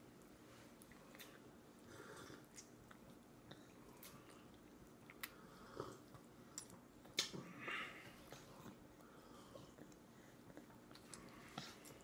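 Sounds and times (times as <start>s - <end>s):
wet mouth clicks and smacks: 6.6s - 7.4s
baby chewing and sucking: 8.3s - 12.0s.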